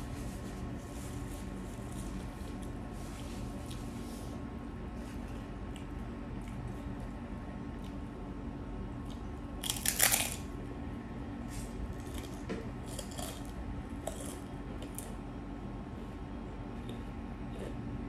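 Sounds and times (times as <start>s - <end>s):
crunchy chewing: 1.1s - 4.0s, 5.0s - 10.6s, 11.5s - 15.2s
crunching bite: 9.0s - 10.5s, 12.0s - 15.1s.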